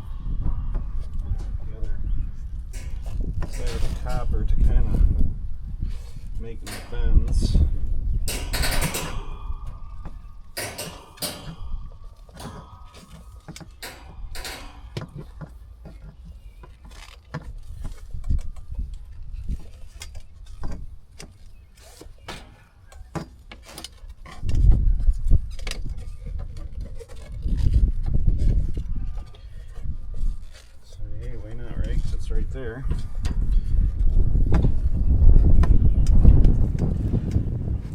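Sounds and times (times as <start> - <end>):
low rumble: 0.0 - 15.8.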